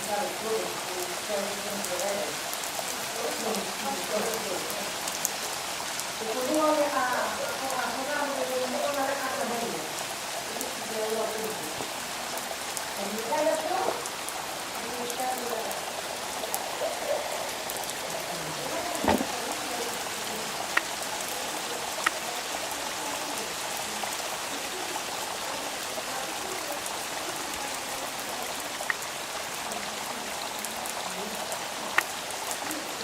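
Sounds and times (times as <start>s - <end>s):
steady rain hiss: 0.0s - 33.0s
dull knock: 19.0s - 19.4s.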